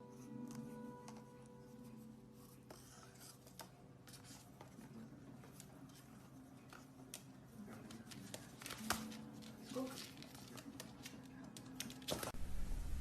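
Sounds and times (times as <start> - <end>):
low hum: 12.4 - 13.0.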